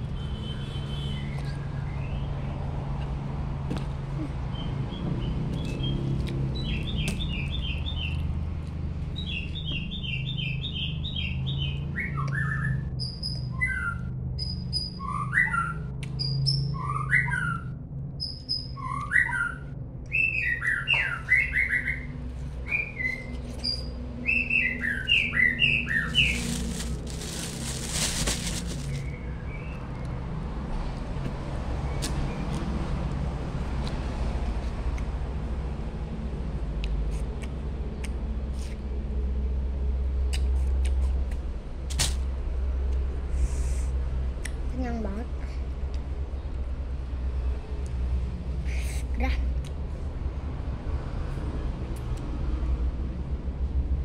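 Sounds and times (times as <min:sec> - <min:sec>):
songbirds chirping: 0:04.5 - 0:30.6.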